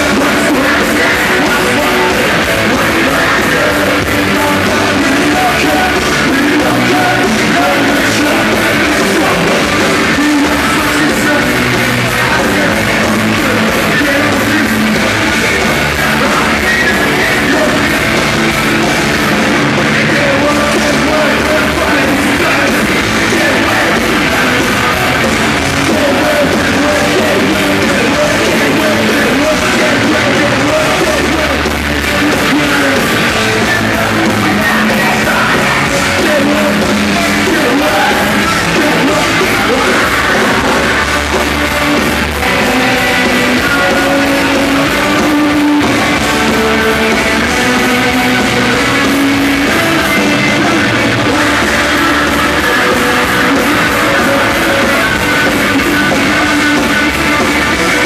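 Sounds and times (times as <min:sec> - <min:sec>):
distorted guitars: 0:00.0 - 0:58.0
drums: 0:00.0 - 0:58.0
shouted vocals: 0:00.0 - 0:58.0.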